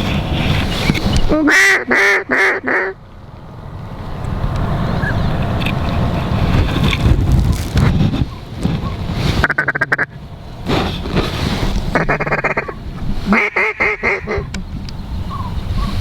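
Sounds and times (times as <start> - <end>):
wind on microphone: 0.0 - 1.6, 2.9 - 16.0
duck quacking: 1.3 - 3.0, 9.4 - 10.2, 11.9 - 14.5.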